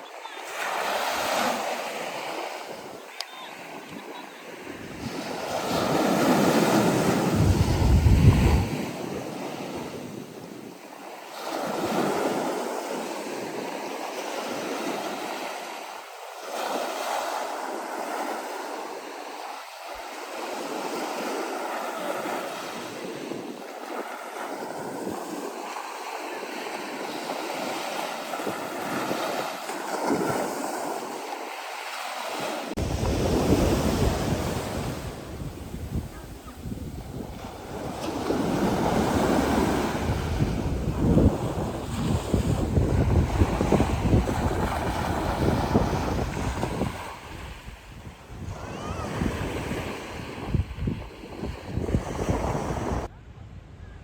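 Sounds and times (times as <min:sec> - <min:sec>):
sea waves washing ashore: 0:00.0 - 0:53.1
wind buffeting microphone: 0:03.7 - 0:10.8, 0:32.8 - 0:54.0.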